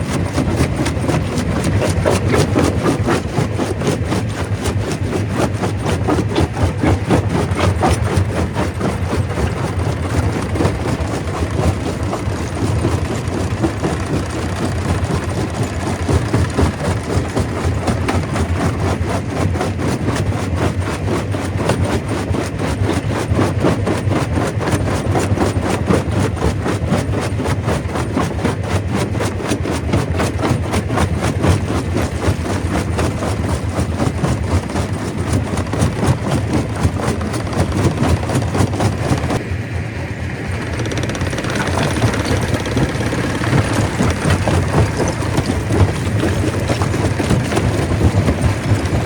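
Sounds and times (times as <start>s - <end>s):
low machine drone: 37.1s - 49.0s
rock being crushed clattering: 41.0s - 49.0s.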